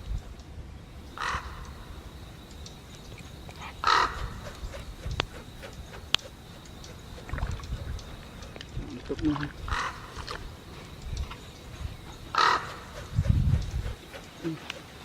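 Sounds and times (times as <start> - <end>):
harsh bird calls: 0.8 - 15.0
sharp clicks: 2.4 - 11.9.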